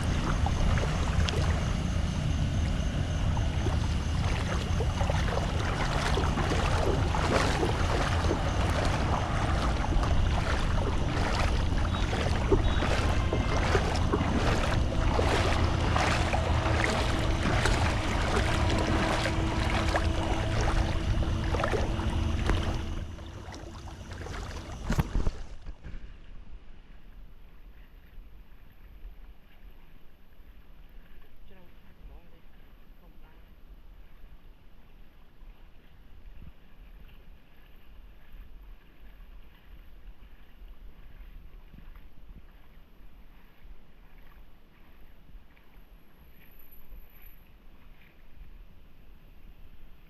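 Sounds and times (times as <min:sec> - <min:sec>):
floodwater splashing and rushing: 0:00.0 - 0:25.7
wind rumble on microphone: 0:00.0 - 0:50.0.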